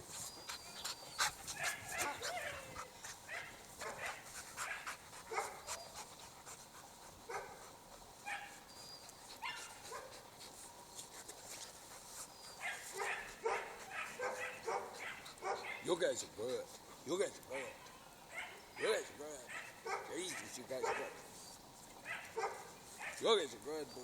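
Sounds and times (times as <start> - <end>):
dogs barking and yipping: 0.4 - 6.2, 7.3 - 10.5, 12.2 - 15.9, 17.5 - 23.3.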